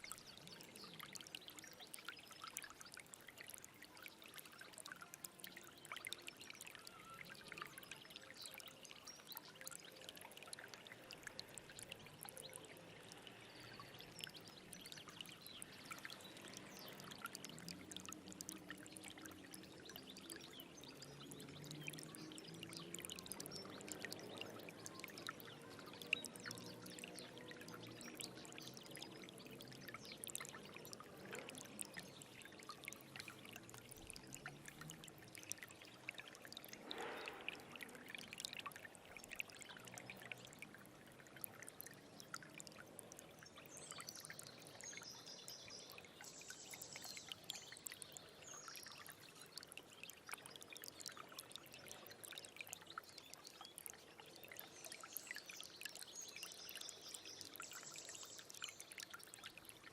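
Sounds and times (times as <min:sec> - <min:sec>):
stream trickling and gurgling: 0:00.0 - 0:59.9.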